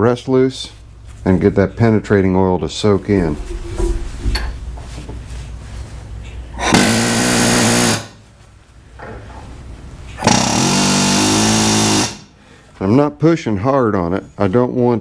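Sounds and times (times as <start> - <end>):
power hammer rattling: 10.2 - 12.3.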